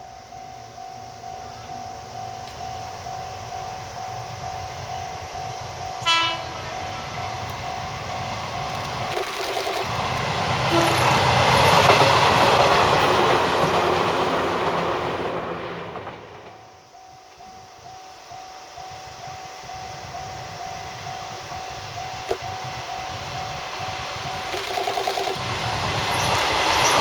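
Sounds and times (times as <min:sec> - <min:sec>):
electric train passing: 0:00.0 - 0:27.0
train horn blast: 0:06.0 - 0:06.9, 0:10.7 - 0:11.3.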